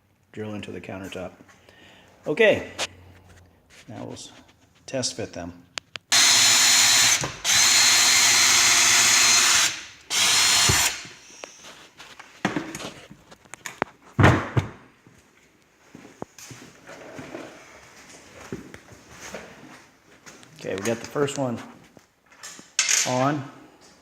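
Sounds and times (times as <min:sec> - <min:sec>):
cordless drill running: 0:06.1 - 0:11.6.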